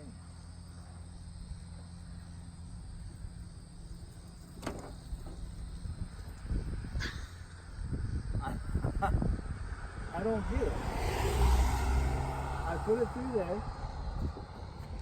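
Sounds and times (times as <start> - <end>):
vehicle engine idling: 0.0 - 10.9, 11.8 - 15.0
insects chirping: 0.0 - 15.0.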